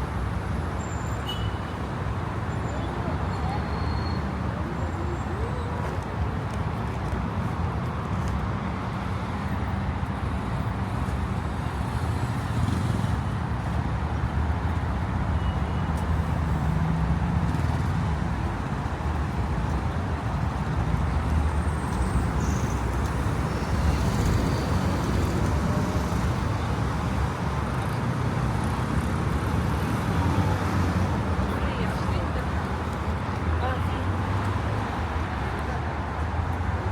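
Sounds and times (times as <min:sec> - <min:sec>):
rumble of passing cars: 0:00.0 - 0:36.9.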